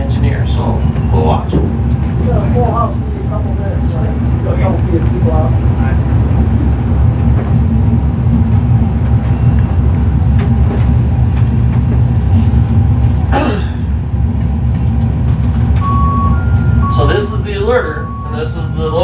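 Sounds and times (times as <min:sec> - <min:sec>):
diesel freight train rumbling: 0:00.0 - 0:19.0.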